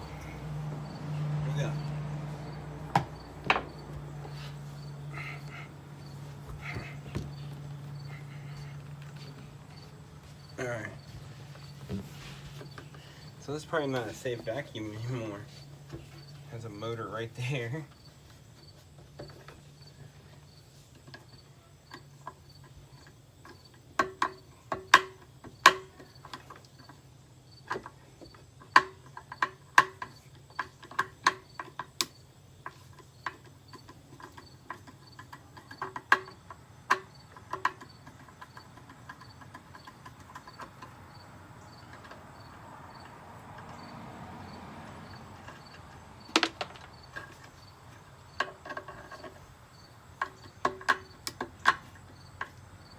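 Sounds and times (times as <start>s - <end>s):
hand tools knocking on metal housing: 0.0s - 9.4s.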